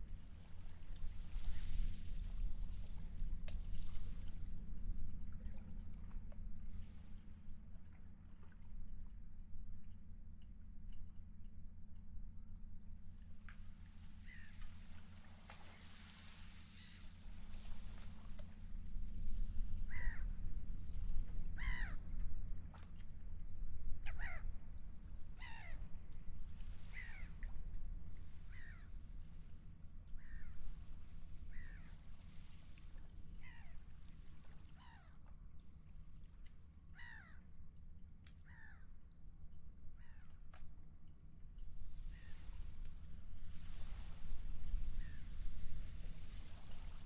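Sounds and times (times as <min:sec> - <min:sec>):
steady low rumble: 0:00.0 - 0:47.0
gull calling: 0:19.9 - 0:20.3, 0:21.6 - 0:22.0, 0:24.0 - 0:24.5, 0:28.5 - 0:28.9, 0:37.0 - 0:37.4.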